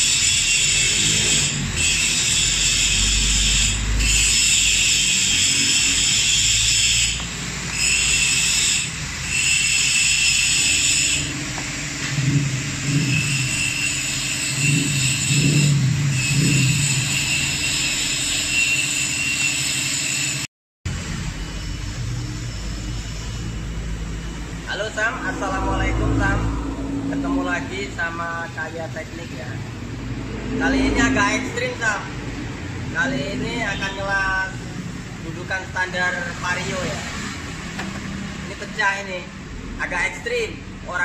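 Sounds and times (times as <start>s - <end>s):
high buzz of workshop equipment: 0.0s - 41.0s
low pulsing rumbles: 22.2s - 33.0s.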